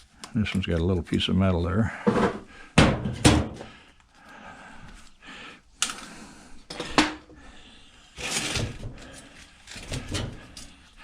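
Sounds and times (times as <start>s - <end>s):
pliers clicking and scraping metal: 8.2s - 11.0s.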